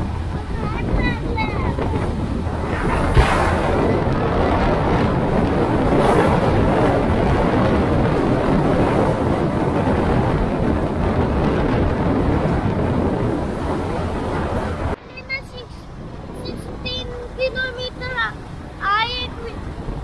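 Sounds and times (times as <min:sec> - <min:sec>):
motorcycle engine: 0:00.0 - 0:15.0
road noise: 0:00.0 - 0:20.0
wind buffeting microphone: 0:00.0 - 0:20.0.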